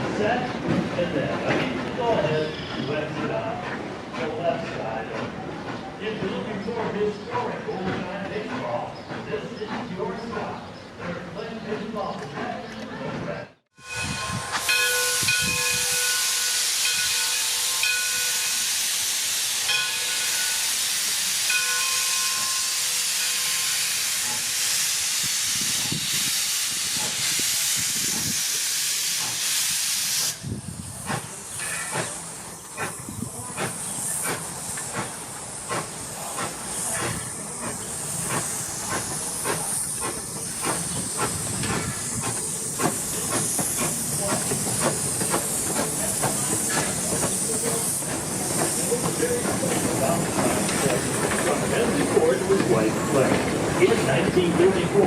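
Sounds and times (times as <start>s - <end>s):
steam hissing loudly: 13.9s - 55.0s
clacking knocks and rumble: 31.9s - 55.0s.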